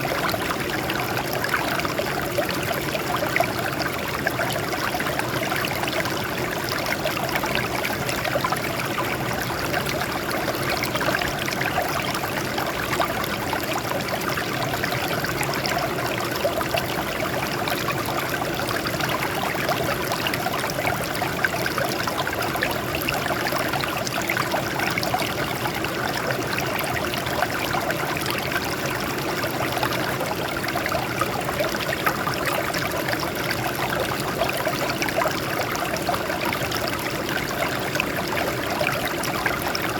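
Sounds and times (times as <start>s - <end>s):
water flowing over rocks: 0.0s - 39.9s.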